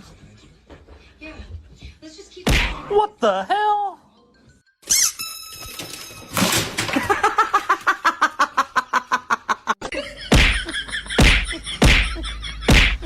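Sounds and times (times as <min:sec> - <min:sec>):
person laughing: 0:07.0 - 0:13.0.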